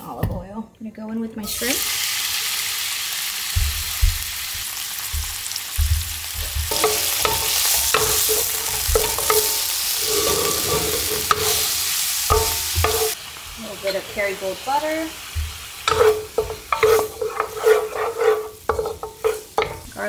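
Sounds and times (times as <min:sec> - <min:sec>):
shrimp sizzling in oil: 0:01.5 - 0:20.0
spatula scraping a pan: 0:06.4 - 0:13.2, 0:15.4 - 0:20.0.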